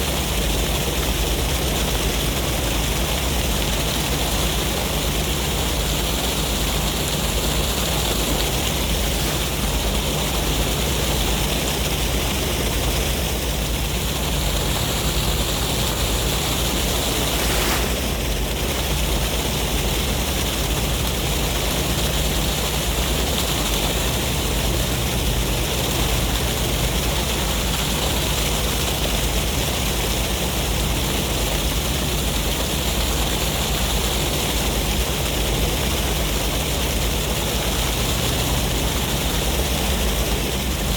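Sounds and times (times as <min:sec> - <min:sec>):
sea waves rushing: 0:04.7 - 0:22.4.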